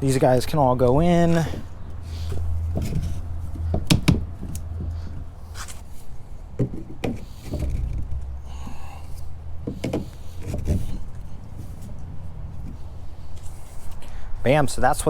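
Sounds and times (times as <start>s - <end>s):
steady low hum: 0.0s - 14.5s
scraping squeak: 1.3s - 6.1s
plastic pipe knocking: 2.6s - 5.2s, 6.6s - 8.4s, 9.6s - 11.0s.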